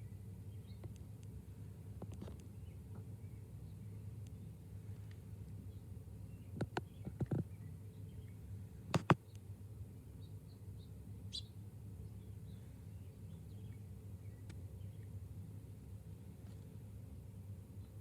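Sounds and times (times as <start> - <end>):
small birds chirping: 0.0 - 15.8
low background hum: 0.0 - 18.0
sharp knocks: 9.0 - 9.2.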